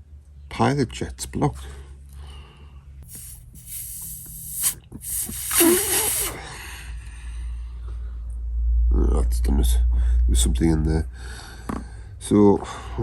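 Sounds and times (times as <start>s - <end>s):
breath blown through jet hissing: 3.0s - 6.6s.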